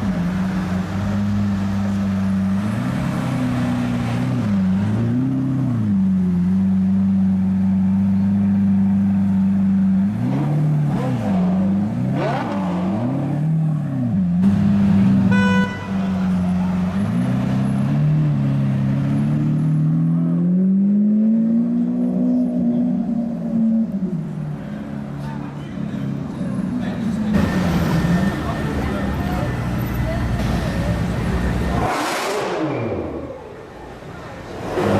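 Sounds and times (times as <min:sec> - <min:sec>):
car engine idling and revving: 0:00.0 - 0:34.9
car horn beep: 0:15.3 - 0:16.2.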